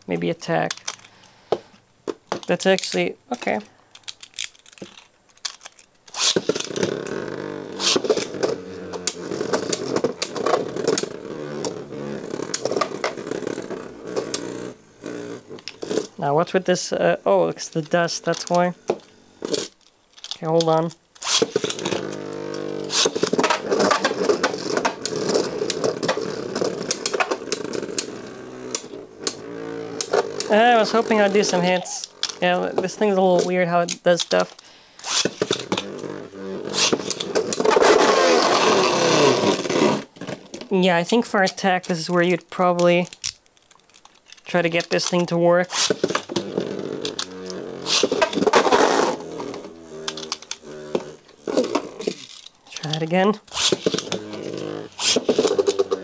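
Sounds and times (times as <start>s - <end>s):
spinning tops clicking and knocking: 4.0s - 7.1s
spinning tops whirring: 6.1s - 19.6s, 20.6s - 40.1s, 44.5s - 56.0s
tops clattering against plastic: 50.1s - 56.0s.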